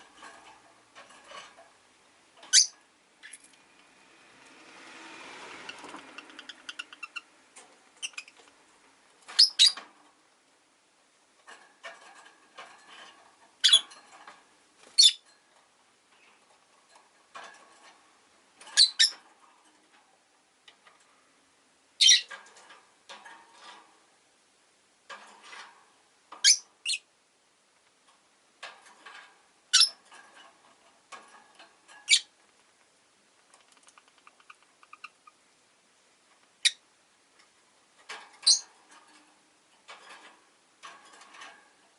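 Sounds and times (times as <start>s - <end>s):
lovebirds chirping: 2.5s - 3.6s, 5.7s - 7.3s, 7.9s - 8.6s, 9.3s - 9.8s, 13.6s - 13.9s, 14.8s - 15.3s, 18.8s - 19.2s, 22.0s - 22.3s, 38.4s - 38.7s
birds chattering: 5.6s - 7.3s, 33.6s - 35.4s.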